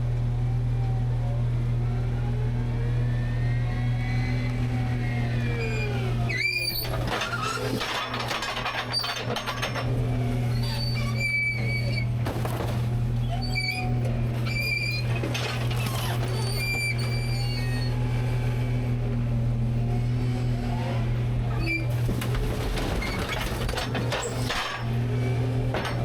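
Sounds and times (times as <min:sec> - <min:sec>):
garbage truck engine humming: 0:00.0 - 0:26.0
high squeaks from hopper: 0:05.3 - 0:09.8, 0:10.4 - 0:18.2, 0:21.6 - 0:25.0.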